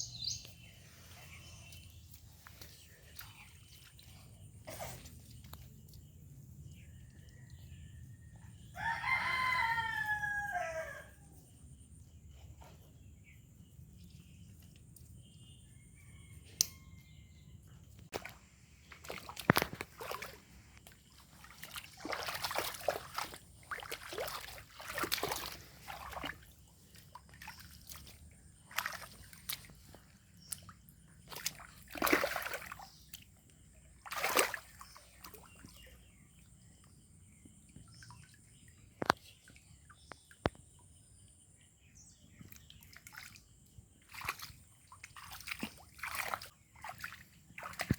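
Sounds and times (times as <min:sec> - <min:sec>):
shallow water splashing: 0:18.1 - 0:40.1, 0:42.4 - 0:47.9.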